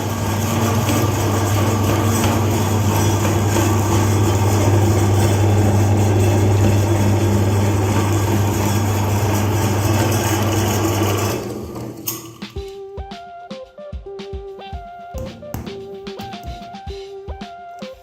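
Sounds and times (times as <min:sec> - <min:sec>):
meat grinder motor humming: 0:00.0 - 0:12.4
grinding mechanism noise: 0:00.0 - 0:12.5.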